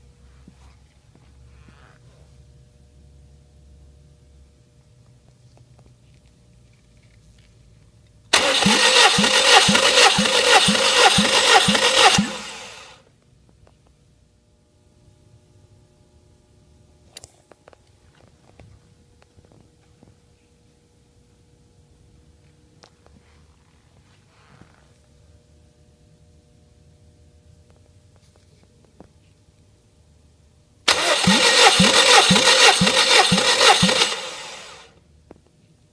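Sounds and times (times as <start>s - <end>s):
engine cranking with starter motor: 8.3s - 13.0s, 30.9s - 34.9s
starter motor whirring down: 8.3s - 13.0s, 30.9s - 34.9s.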